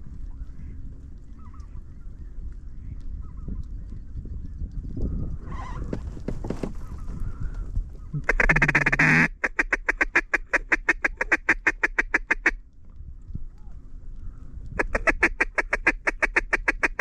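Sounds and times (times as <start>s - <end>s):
duck call quacks: 8.2s - 12.6s, 14.8s - 17.0s
geese honking: 8.2s - 12.6s, 14.8s - 17.0s.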